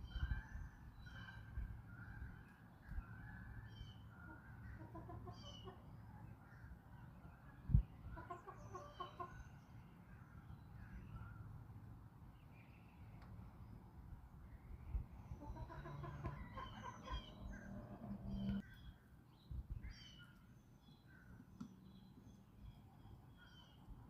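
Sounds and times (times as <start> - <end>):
small birds chirping: 0.0 - 24.0
hens clucking: 4.7 - 5.8, 8.1 - 9.4, 15.4 - 18.6.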